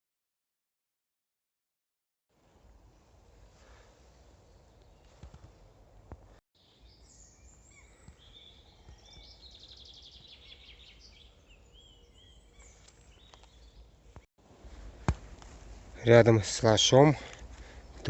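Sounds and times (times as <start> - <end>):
short bird chirps: 6.6 - 13.9
bird trilling: 7.1 - 13.9.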